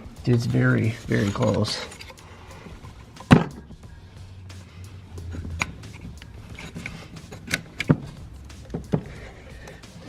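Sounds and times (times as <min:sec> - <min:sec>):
metal tools clicking and knocking: 0:00.4 - 0:02.2, 0:03.0 - 0:03.7, 0:05.2 - 0:09.8.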